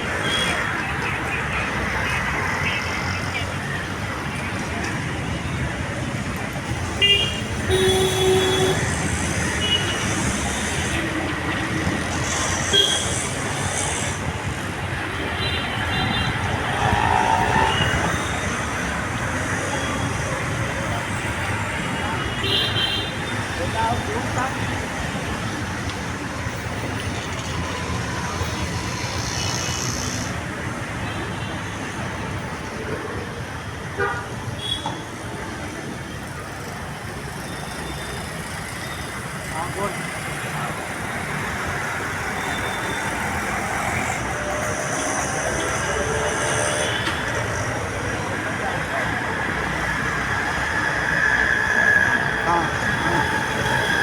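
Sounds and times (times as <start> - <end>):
road traffic noise: 0.0 - 54.0
car horn toot: 7.0 - 8.9.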